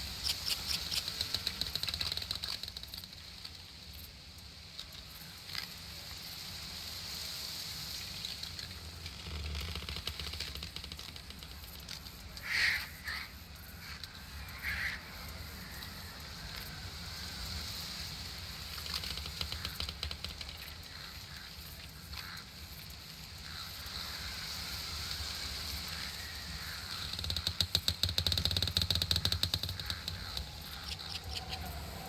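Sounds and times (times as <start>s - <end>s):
fast run of clicks: 0.0s - 4.1s, 18.7s - 21.0s, 26.6s - 31.8s.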